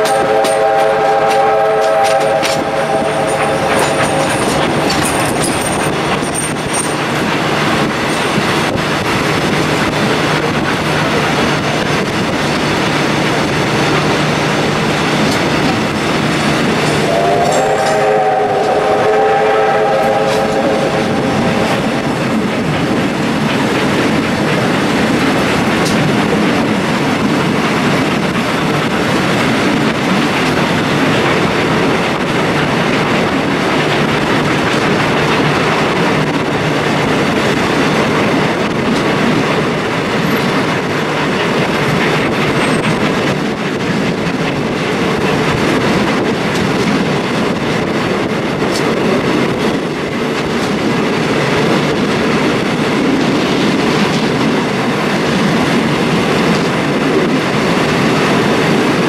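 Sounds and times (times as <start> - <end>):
train horn: 0.0 - 5.1, 17.0 - 22.2
train wheel and rail noise: 0.0 - 59.0.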